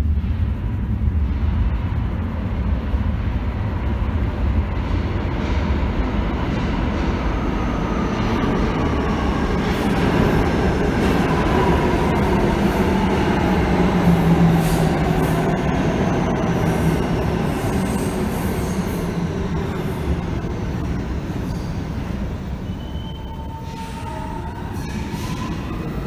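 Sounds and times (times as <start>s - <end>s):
train wheels rumbling on rails: 0.0s - 26.0s
faint wheel squeal: 22.6s - 25.6s.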